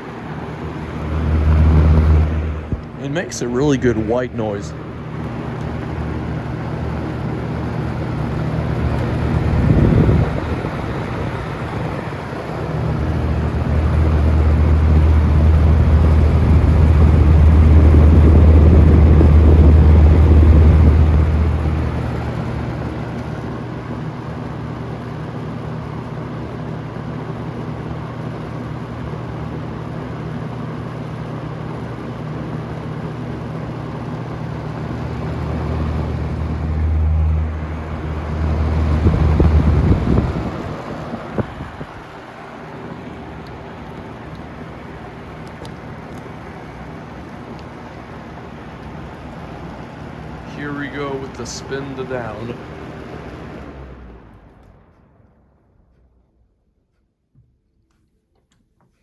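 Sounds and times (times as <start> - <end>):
box fan running: 0.0 - 57.2
loud low rumble: 0.7 - 5.1, 5.7 - 23.0, 34.8 - 42.1.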